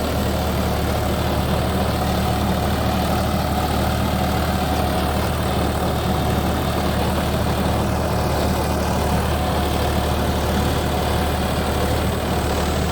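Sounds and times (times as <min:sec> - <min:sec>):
tractor diesel engine droning: 0:00.0 - 0:12.9.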